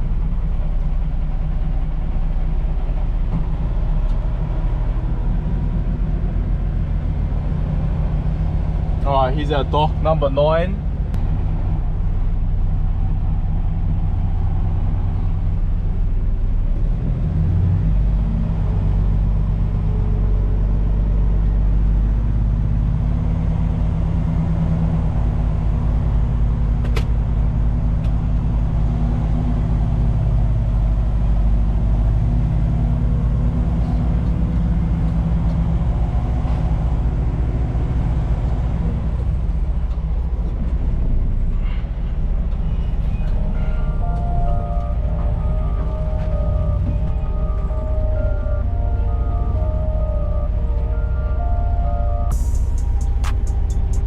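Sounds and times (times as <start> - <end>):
truck diesel engine running: 0.0 - 54.0
sharp click: 52.4 - 54.0.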